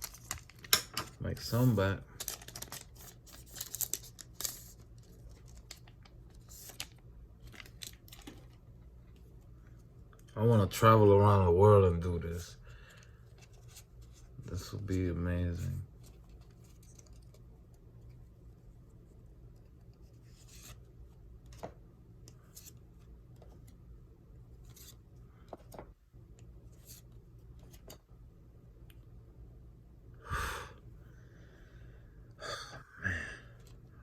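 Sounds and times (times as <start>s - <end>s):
trading cards rustling: 0.0s - 8.7s, 15.6s - 17.5s
low steady hum: 0.0s - 34.0s.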